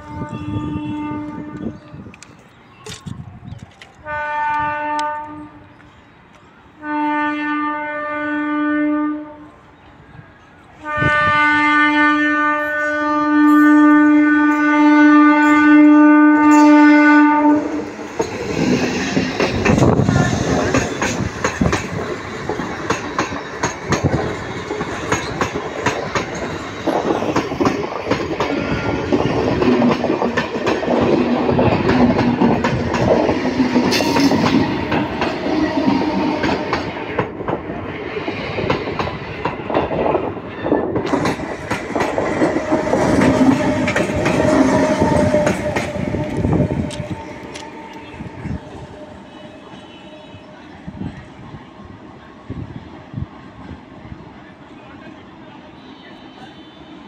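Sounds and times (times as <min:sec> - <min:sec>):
train horn blasts: 0:00.0 - 0:02.1, 0:04.0 - 0:05.7, 0:06.8 - 0:09.6, 0:10.8 - 0:18.0, 0:28.4 - 0:30.0, 0:33.6 - 0:36.9, 0:42.4 - 0:51.0, 0:55.6 - 0:57.0
train passing with loud rumble: 0:00.0 - 0:57.0
wheels clacking over rail joints: 0:17.7 - 0:48.2.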